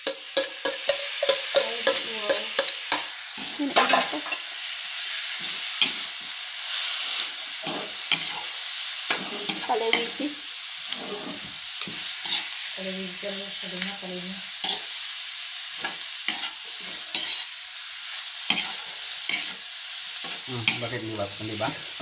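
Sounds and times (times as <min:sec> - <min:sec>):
spoon clicking and scraping a pan: 0:00.0 - 0:03.1, 0:14.6 - 0:14.9, 0:15.8 - 0:17.5, 0:18.5 - 0:19.6
beef sizzling in a wok: 0:00.0 - 0:22.0.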